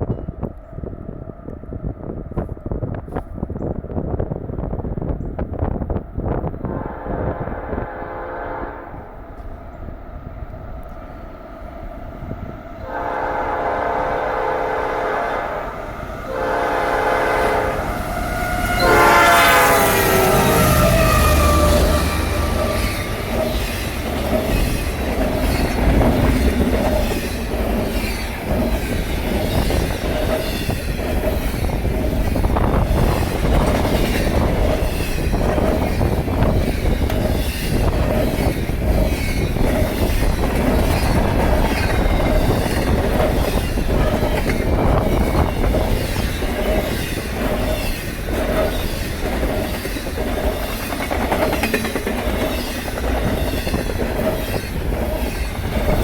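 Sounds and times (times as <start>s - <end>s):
freight train wheels rumbling on rail: 0.0s - 56.0s
wheels clicking over rail joints: 17.8s - 56.0s.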